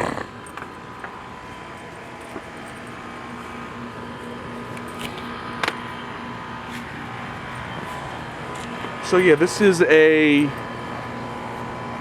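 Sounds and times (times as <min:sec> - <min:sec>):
heat pump humming: 0:00.0 - 0:12.0.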